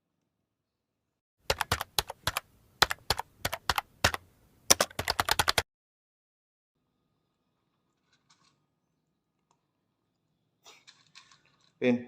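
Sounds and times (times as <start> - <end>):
sharp typing-like clicks: 1.5 - 5.6.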